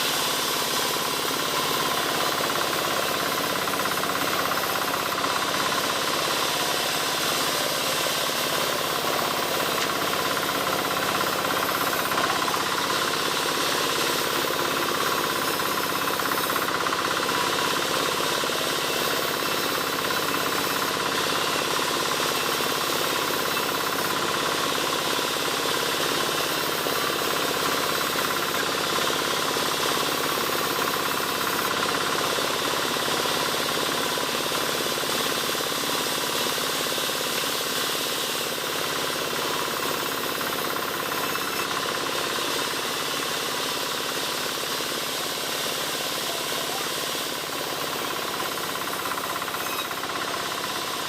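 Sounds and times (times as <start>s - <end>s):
wood-sawing machine running: 0.0s - 51.0s.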